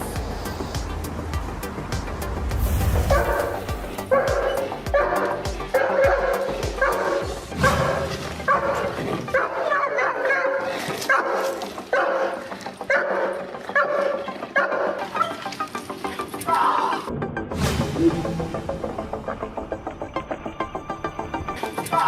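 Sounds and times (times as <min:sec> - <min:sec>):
dog barking: 0:04.1 - 0:15.5.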